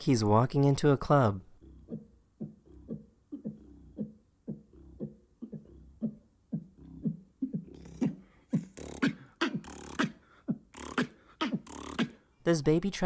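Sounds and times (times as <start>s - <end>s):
beatboxing bass kicks: 1.6s - 12.3s
beatboxed hi-hat and snare: 1.8s - 12.2s.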